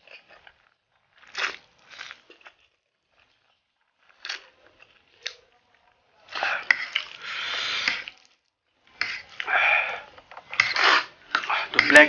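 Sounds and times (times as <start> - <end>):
noisy noodle slurping: 6.3 - 8.3, 8.9 - 12.0.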